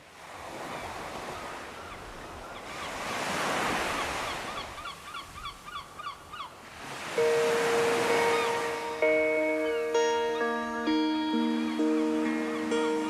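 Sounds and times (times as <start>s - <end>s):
waves washing on shore: 0.0s - 5.4s, 6.5s - 10.6s.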